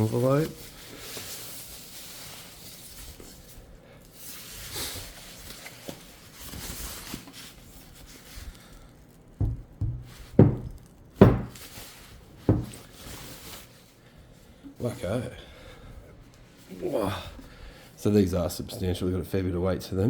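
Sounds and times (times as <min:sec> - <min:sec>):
foam packaging rustling: 0:00.0 - 0:14.1
speaker cabinet knocking: 0:09.4 - 0:11.6, 0:12.5 - 0:12.8.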